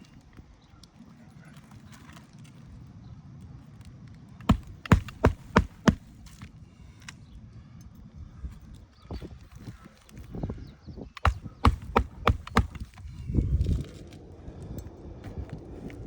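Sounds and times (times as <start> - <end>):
hammer striking nail: 4.5 - 6.2, 11.2 - 13.0.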